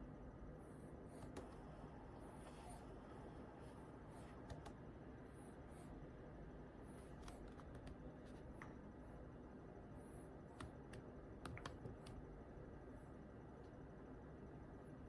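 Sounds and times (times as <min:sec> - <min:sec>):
faint room hum: 0:00.0 - 0:15.0
keyboard and mouse clicks: 0:10.6 - 0:12.2.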